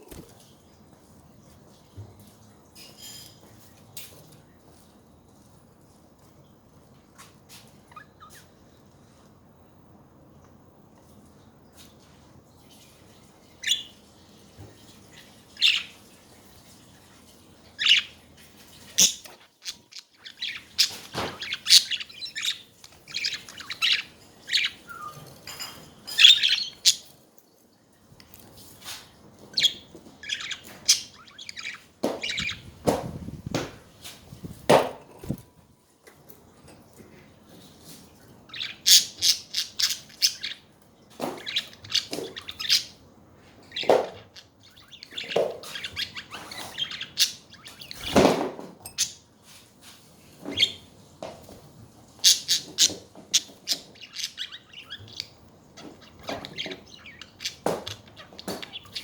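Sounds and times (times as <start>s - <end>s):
budgerigars chirping: 18.8s - 25.2s, 29.6s - 32.8s, 38.5s - 40.6s, 41.4s - 43.0s, 43.7s - 48.2s, 52.2s - 59.0s.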